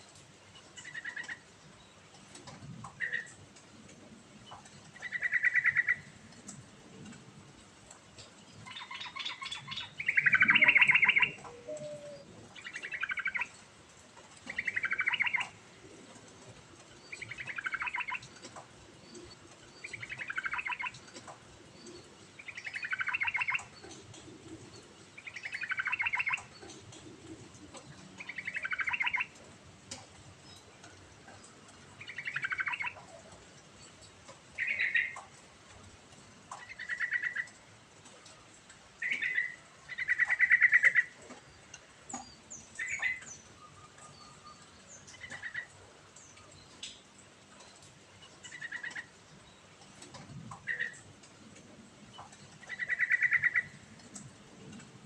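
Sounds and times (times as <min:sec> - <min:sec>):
bird singing: 0:08.4 - 0:13.6, 0:14.5 - 0:15.5, 0:16.9 - 0:21.2, 0:21.8 - 0:24.0, 0:24.7 - 0:27.0, 0:27.7 - 0:29.3, 0:32.0 - 0:33.1, 0:34.6 - 0:35.2, 0:39.0 - 0:46.8, 0:52.1 - 0:53.8.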